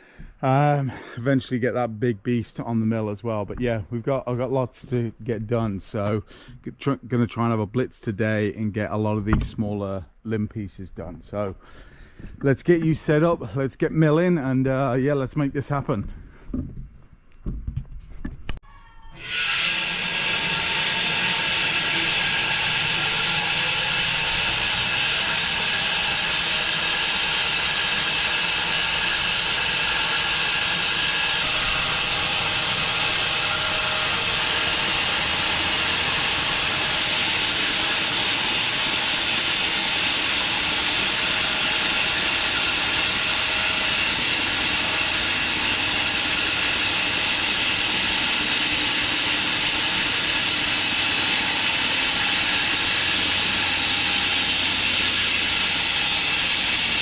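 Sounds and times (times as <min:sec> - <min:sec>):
bandsaw mill sawing log: 0:19.2 - 0:57.0.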